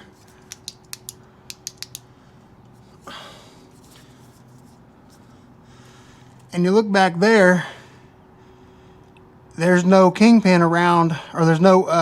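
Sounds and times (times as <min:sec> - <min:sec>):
light sharp clicks: 0:00.3 - 0:02.8.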